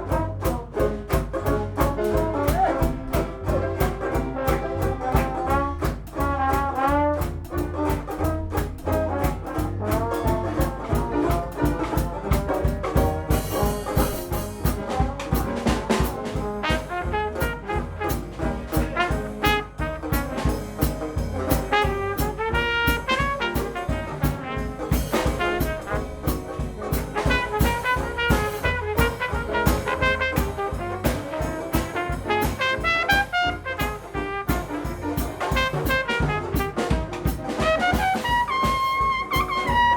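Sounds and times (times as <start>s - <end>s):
jazz band playing: 0.0s - 39.9s
trumpet lead: 0.0s - 39.9s.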